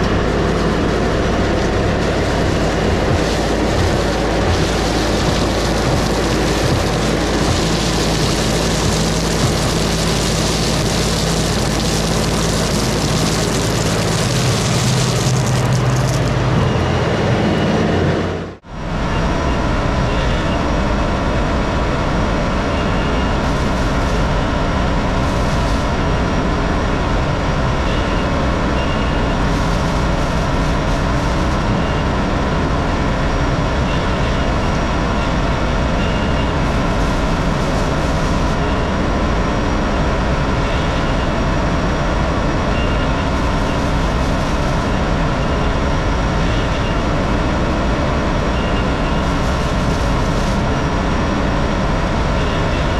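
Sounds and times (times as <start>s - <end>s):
tractor diesel engine running: 0.0s - 18.6s.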